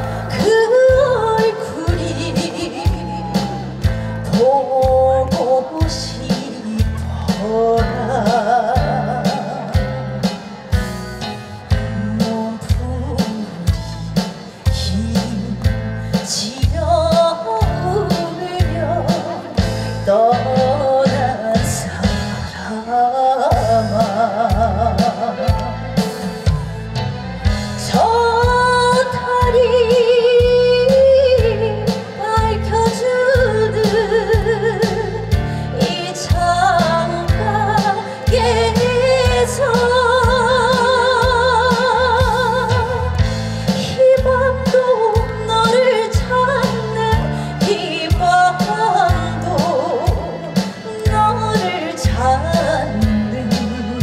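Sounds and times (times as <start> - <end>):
woman singing with vibrato: 0.0 - 10.3, 11.8 - 26.9, 27.6 - 54.0
band accompaniment with drum beat: 0.0 - 54.0.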